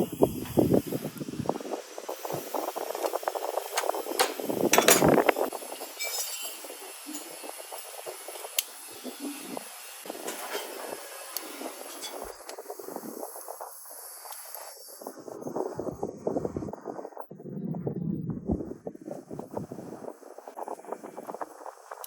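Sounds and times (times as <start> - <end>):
metal parts and tools clinking: 3.8 - 5.3, 5.9 - 7.9, 10.2 - 11.0, 11.8 - 12.3.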